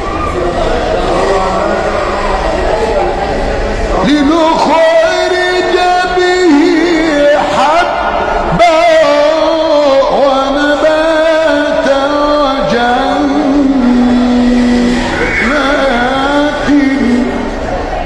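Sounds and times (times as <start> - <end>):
man chanting melodically: 3.9 - 17.8.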